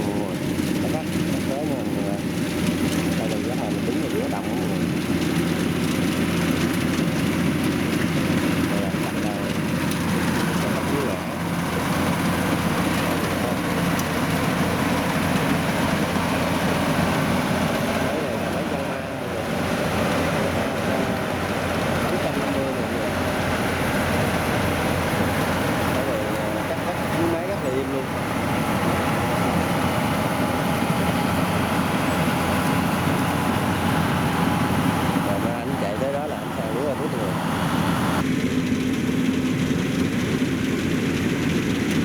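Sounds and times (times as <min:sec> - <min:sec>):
combine harvester running: 0:00.0 - 0:42.0.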